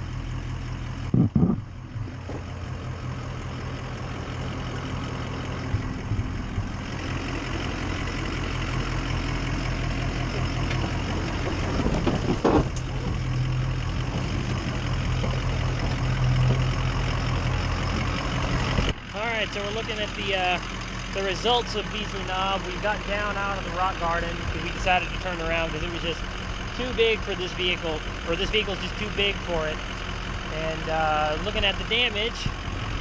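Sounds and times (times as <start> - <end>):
diesel engine running: 0.0 - 33.0
loud thumps: 1.1 - 2.5.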